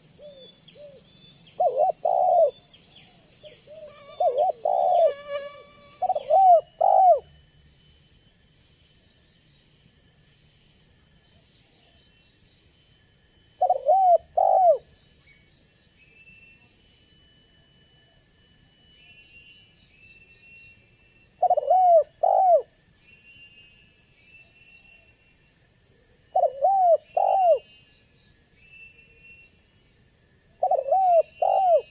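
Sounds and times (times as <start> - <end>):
dove cooing: 1.6 - 2.6, 3.7 - 7.2, 13.6 - 14.8, 21.4 - 22.7, 26.4 - 27.6, 30.6 - 31.9.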